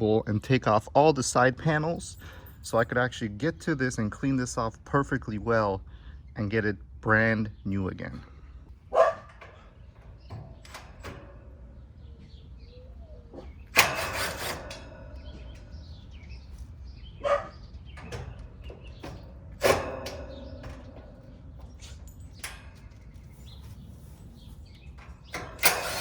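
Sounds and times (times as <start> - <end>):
handling noise: 8.7 - 26.0
sharp metallic knocks: 13.4 - 16.5, 17.2 - 23.2, 24.9 - 26.0.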